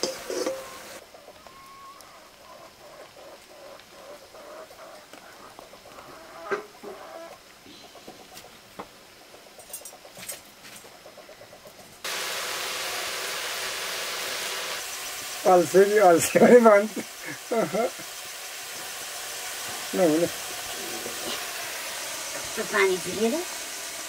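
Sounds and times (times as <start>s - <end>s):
vegetables sizzling in hot oil: 0.0s - 4.0s, 12.0s - 24.0s.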